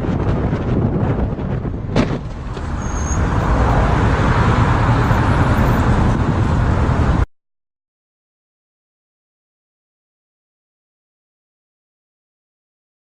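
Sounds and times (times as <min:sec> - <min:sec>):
road vehicle noise: 0:00.0 - 0:07.3.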